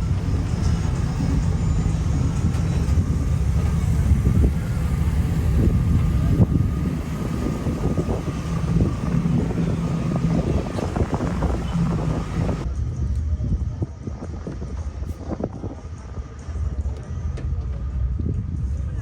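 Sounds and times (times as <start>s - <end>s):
pickup truck engine running: 0.0s - 12.7s.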